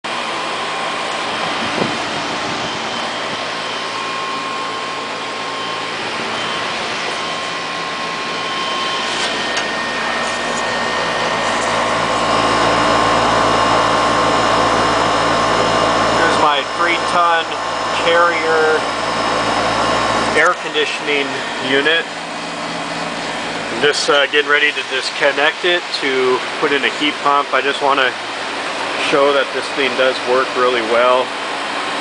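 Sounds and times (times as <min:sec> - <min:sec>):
air conditioner fan rushing: 0:00.0 - 0:32.0.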